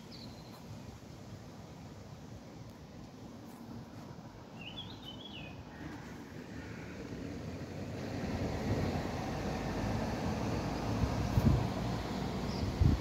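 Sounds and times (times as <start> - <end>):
outdoor background rumble: 5.5 - 13.0.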